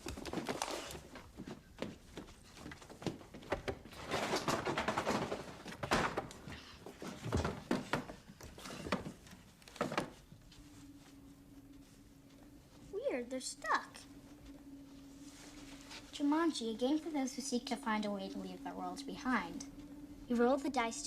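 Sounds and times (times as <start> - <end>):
rustling noise: 6.8 - 13.0.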